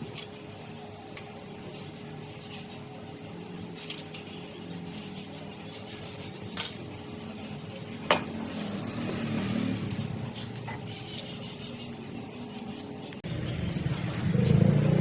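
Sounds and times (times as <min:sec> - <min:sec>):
metal items clinking: 0:03.7 - 0:04.3.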